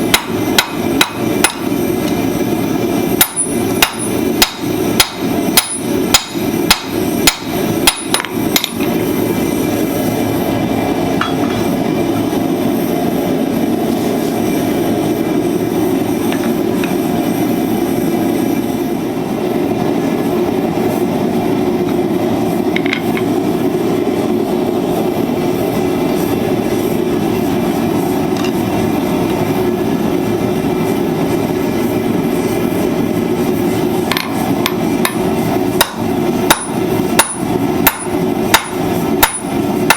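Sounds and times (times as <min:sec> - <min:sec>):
hammer blows on hot steel: 0:00.0 - 0:09.0, 0:33.5 - 0:39.9.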